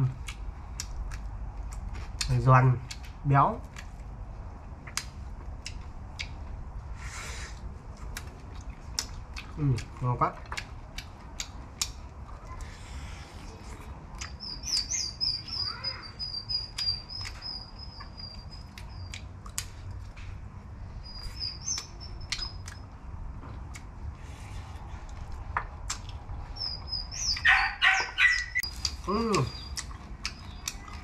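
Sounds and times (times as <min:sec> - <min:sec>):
small birds twittering: 0:12.5 - 0:19.2, 0:20.8 - 0:23.0, 0:25.9 - 0:31.0.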